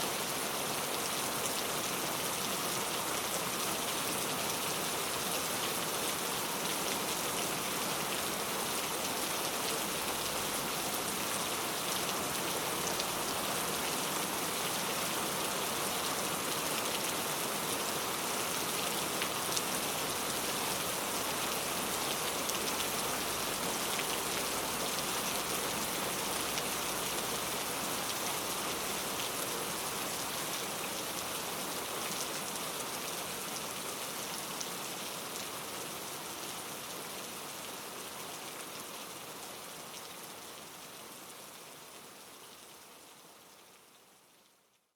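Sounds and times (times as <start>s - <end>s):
rain falling: 0.0s - 44.7s.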